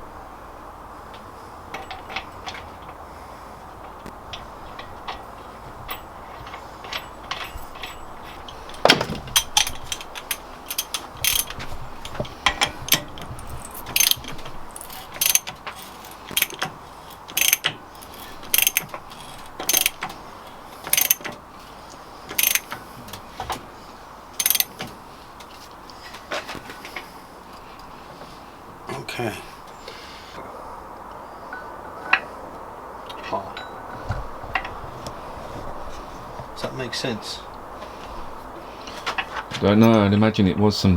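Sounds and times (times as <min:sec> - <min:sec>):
ratchet wrench clicking: 0:05.9 - 0:20.2, 0:20.8 - 0:21.4, 0:22.3 - 0:23.2, 0:24.4 - 0:24.9.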